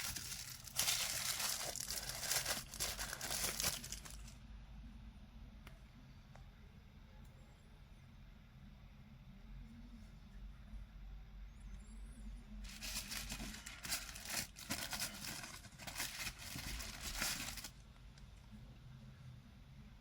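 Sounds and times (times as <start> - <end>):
packaging crinkling: 0.0 - 4.4, 12.7 - 17.8.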